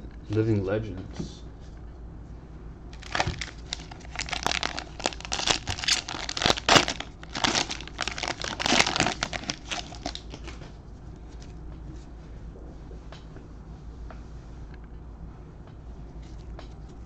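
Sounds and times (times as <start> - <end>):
plastic wrapper crinkling and tearing: 3.0 - 10.6.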